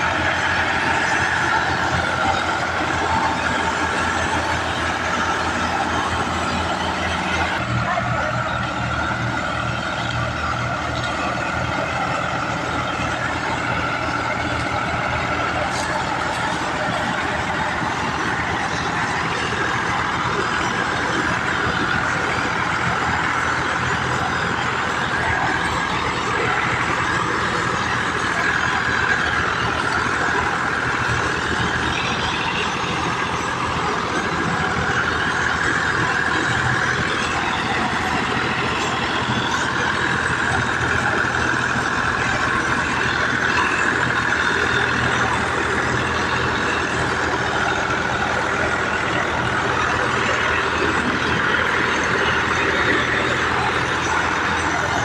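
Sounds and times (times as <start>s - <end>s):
tractor diesel engines running: 0.0s - 55.0s.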